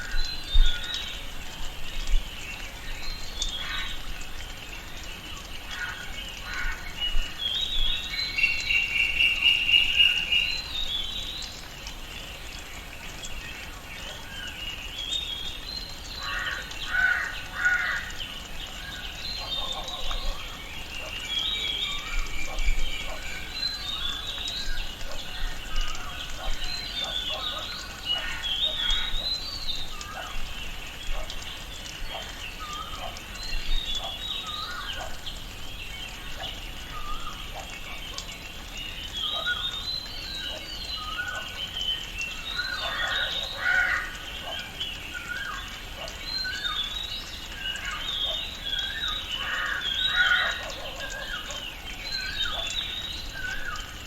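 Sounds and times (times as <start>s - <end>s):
birds chirping and calling: 0.0s - 12.6s, 13.2s - 54.0s.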